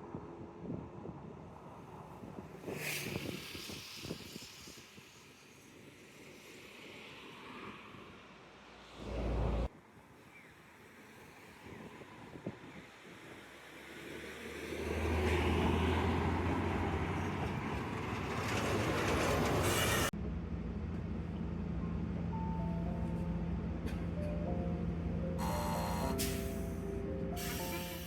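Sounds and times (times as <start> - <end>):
vehicle passing by: 9.0 - 9.7, 14.0 - 20.1.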